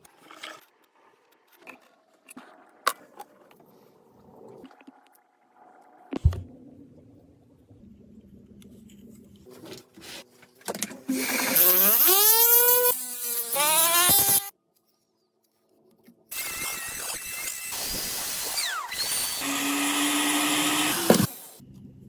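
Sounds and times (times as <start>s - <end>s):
electric power tool whirring: 11.1s - 14.5s, 16.3s - 21.6s.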